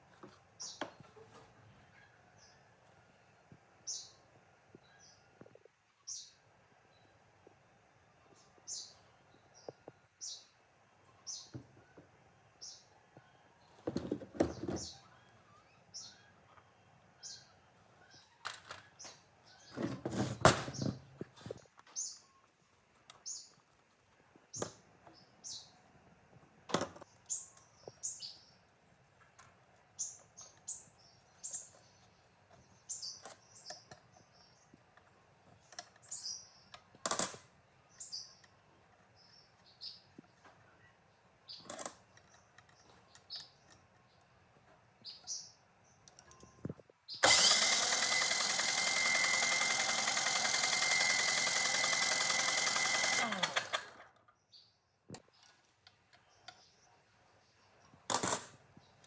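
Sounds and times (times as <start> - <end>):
small birds chirping: 0.0 - 47.3, 53.0 - 59.0
power tool high whine: 47.2 - 53.8.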